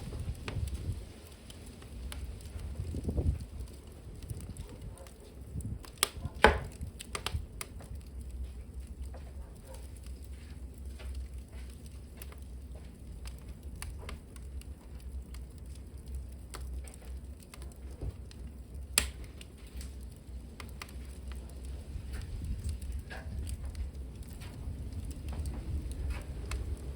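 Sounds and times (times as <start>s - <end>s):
wood fire crackling: 0.0s - 26.9s.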